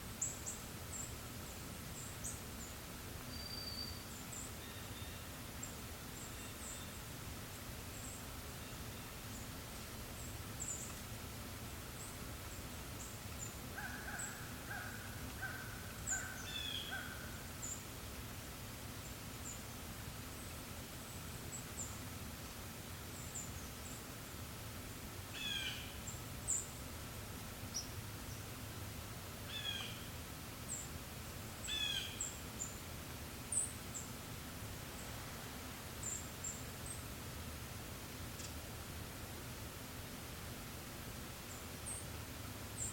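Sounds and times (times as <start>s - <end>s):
soft steady breeze: 0.0s - 42.9s
songbirds chirping: 0.1s - 24.6s, 25.3s - 38.6s, 41.3s - 42.9s
falling bird calls: 13.7s - 17.8s, 25.4s - 26.6s, 29.5s - 30.1s, 31.6s - 32.4s.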